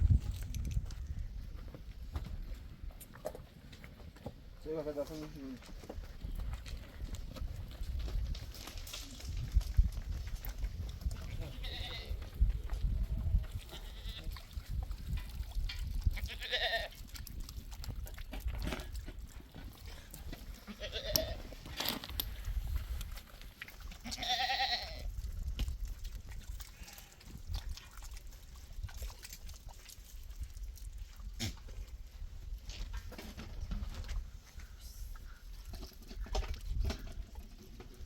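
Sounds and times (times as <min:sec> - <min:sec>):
livestock bleating: 0:11.4 - 0:12.2, 0:13.7 - 0:14.3, 0:16.2 - 0:17.0, 0:20.6 - 0:21.4, 0:24.0 - 0:25.1.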